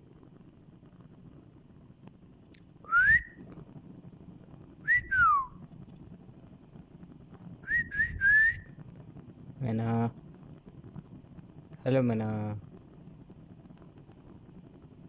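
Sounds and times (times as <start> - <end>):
whistle sliding down: 2.9 - 3.3, 4.9 - 5.5, 7.7 - 8.6
rising whistle: 2.9 - 3.4, 4.9 - 5.5, 7.7 - 8.7.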